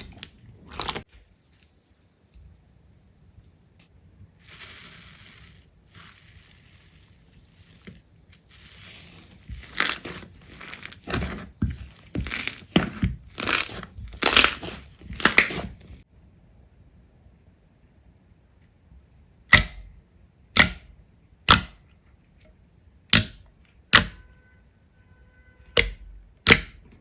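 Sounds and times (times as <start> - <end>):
slime crunching: 4.4 - 15.9
slime rustling: 4.4 - 16.0.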